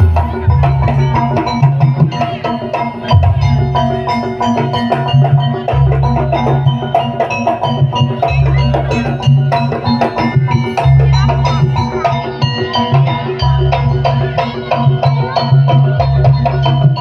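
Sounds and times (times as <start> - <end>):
held low notes: 0.0 - 2.4
drums and metal percussion: 0.0 - 17.0.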